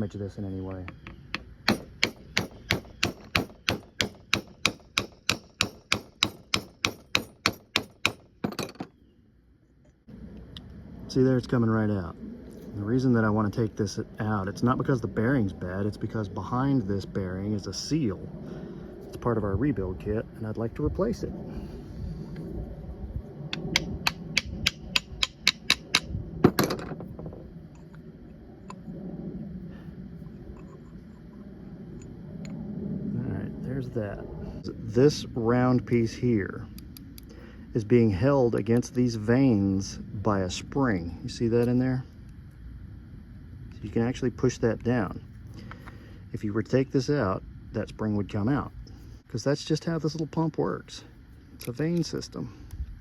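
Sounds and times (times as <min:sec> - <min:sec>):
hard hammer strike: 0:01.4 - 0:08.7
metal parts rattling: 0:06.6 - 0:09.0.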